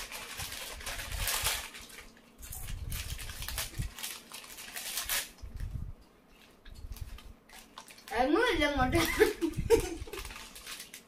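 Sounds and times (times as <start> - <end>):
chip packets rustling: 0.0 - 5.7, 6.3 - 11.0
chips crunched and chewed: 10.1 - 11.0.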